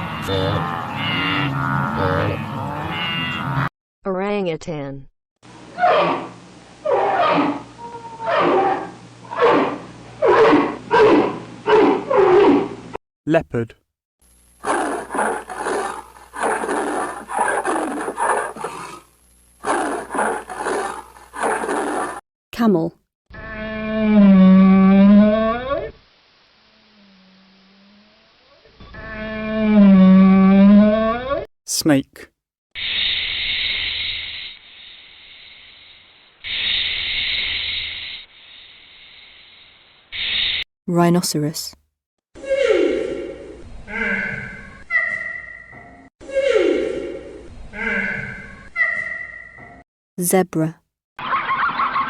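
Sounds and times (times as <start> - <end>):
snake hissing: 32.8 - 40.6.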